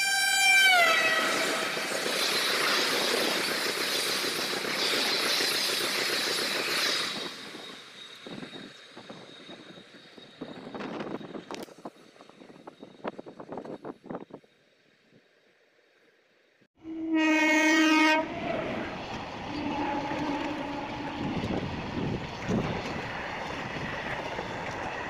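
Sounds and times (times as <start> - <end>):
train horn: 0.0 - 1.6, 16.8 - 18.5, 19.5 - 21.6
train coaches rushing by: 0.6 - 14.4, 18.1 - 25.0.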